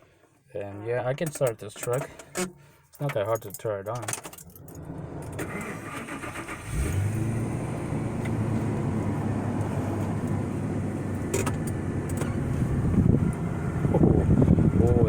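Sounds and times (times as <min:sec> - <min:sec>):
diesel engine starting and idling: 0:04.6 - 0:15.0.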